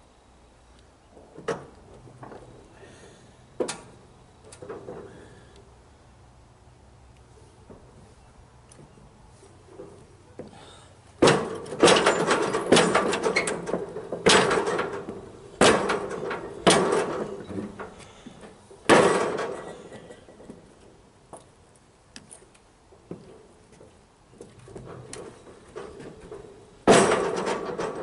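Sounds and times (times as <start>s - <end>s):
loud knocks and clatters: 11.2s - 18.0s, 18.8s - 20.6s, 24.7s - 28.0s.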